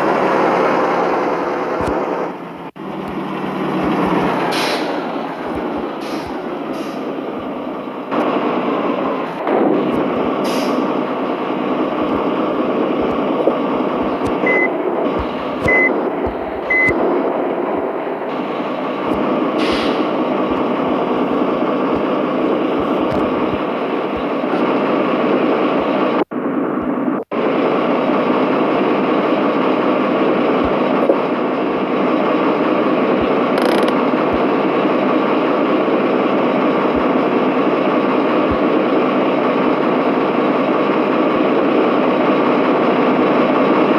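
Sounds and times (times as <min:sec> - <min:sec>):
truck engine running: 0:00.0 - 0:43.9
short beeps: 0:14.4 - 0:14.7, 0:15.6 - 0:16.0, 0:16.6 - 0:17.0.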